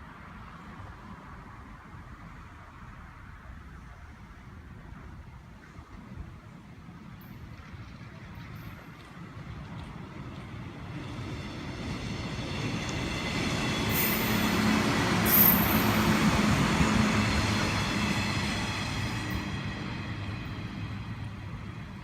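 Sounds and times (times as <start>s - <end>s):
electric train passing: 4.9s - 22.0s.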